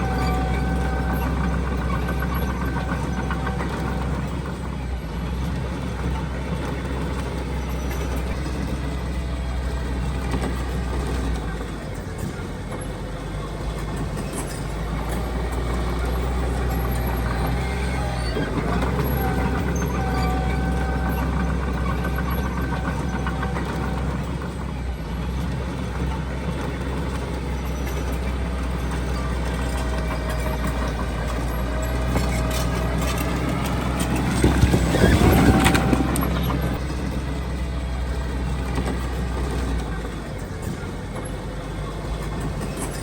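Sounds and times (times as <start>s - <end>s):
diesel machinery engine drone: 0.0s - 43.0s
faint whining tones: 27.5s - 43.0s.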